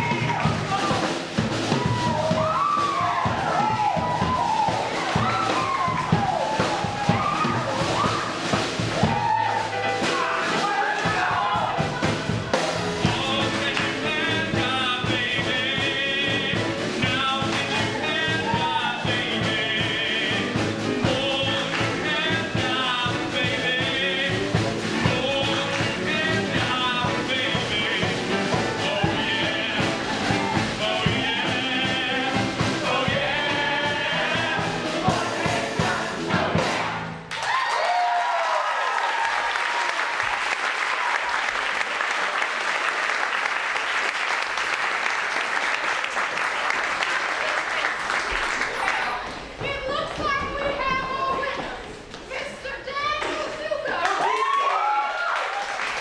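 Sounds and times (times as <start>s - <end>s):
rock and roll song with singing: 0.0s - 37.3s.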